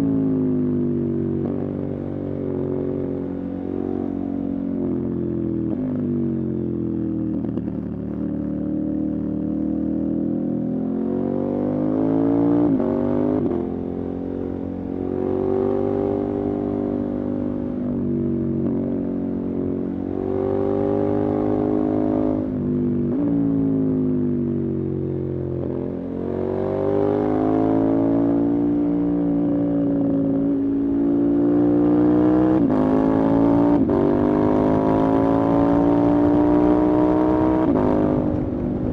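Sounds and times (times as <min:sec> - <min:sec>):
motorcycle engine running: 0:34.7 - 0:38.9.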